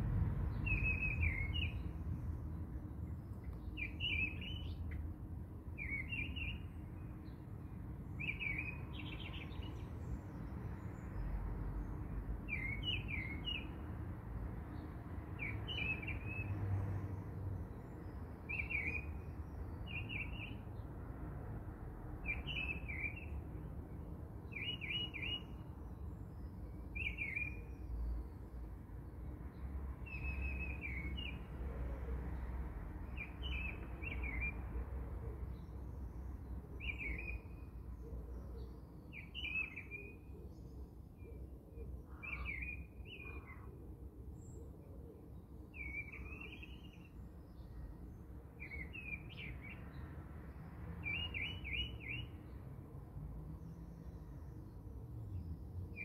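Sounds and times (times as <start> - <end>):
small bird chirping: 0.6 - 1.9.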